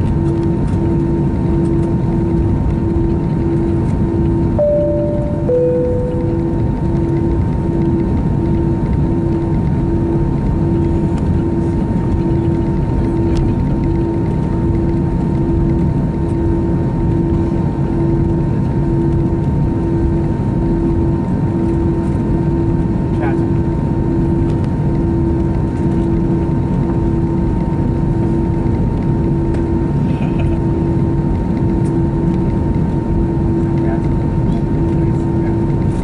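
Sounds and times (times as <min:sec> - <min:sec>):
airplane cabin engine noise: 0:00.0 - 0:36.0
pulsing tone: 0:04.6 - 0:07.3.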